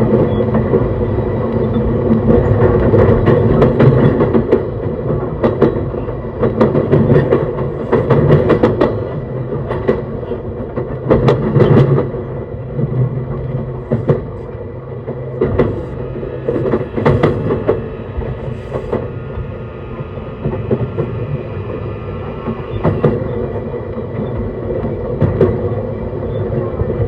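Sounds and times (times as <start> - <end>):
wheels clicking over rail joints: 0.0 - 19.1
electric train rumbling: 0.0 - 27.0.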